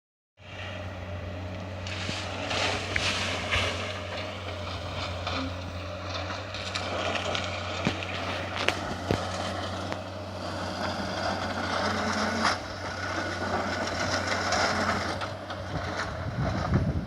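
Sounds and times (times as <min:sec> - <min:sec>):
excavator diesel hum: 0:00.4 - 0:17.0
sharp cracks and knocks: 0:06.1 - 0:10.1.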